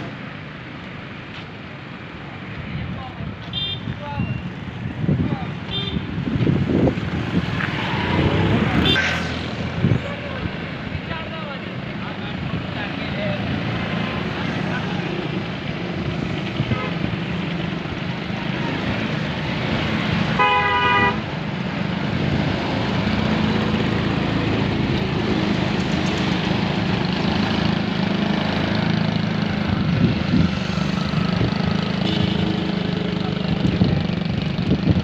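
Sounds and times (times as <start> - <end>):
horn toot: 5.7 - 6.2, 8.6 - 9.4, 16.6 - 17.1, 20.4 - 21.2, 32.0 - 32.8.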